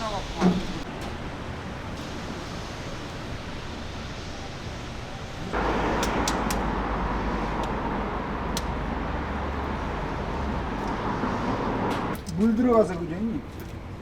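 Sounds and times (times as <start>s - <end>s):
truck engine running: 0.0s - 12.2s
sharp clicks: 6.0s - 6.7s.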